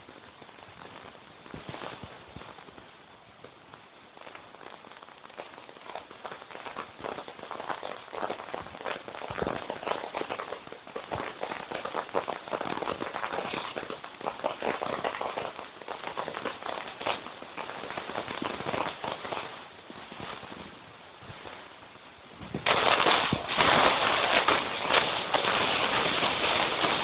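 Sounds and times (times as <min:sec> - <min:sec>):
stones tumbling in rotating drum: 0:22.6 - 0:27.0.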